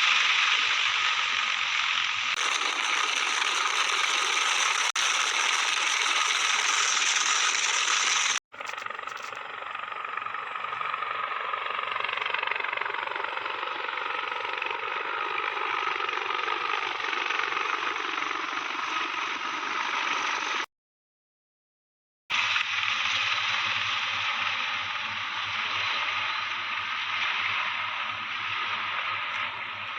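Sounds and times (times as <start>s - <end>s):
helicopter turbine and rotor noise: 0.0s - 20.7s, 22.3s - 29.9s.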